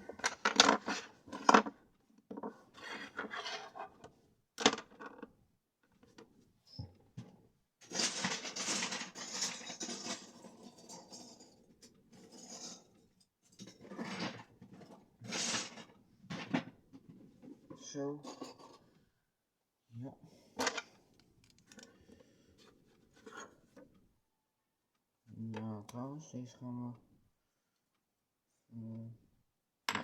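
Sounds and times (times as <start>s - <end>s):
plastic bricks clattering: 7.8s - 10.4s.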